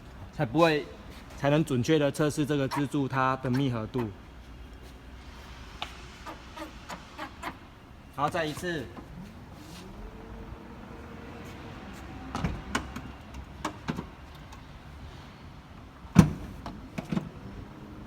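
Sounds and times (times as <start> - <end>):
tailgate shutting with a thud: 16.1 - 17.3.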